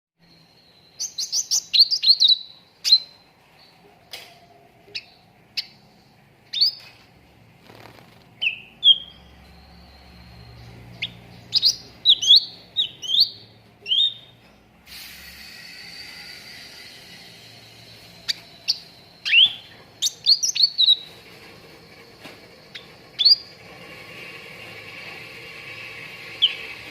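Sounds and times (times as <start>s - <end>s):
bird chirping and whistling: 0.2s - 3.3s, 6.5s - 6.9s, 8.4s - 14.4s, 15.4s - 21.2s, 22.7s - 23.5s, 26.3s - 26.9s
steady hiss: 14.8s - 19.2s, 21.1s - 26.9s.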